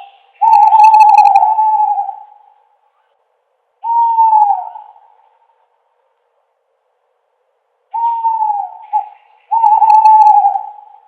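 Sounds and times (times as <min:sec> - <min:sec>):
owl hooting: 0:00.0 - 0:02.7, 0:03.8 - 0:05.4, 0:07.9 - 0:11.0.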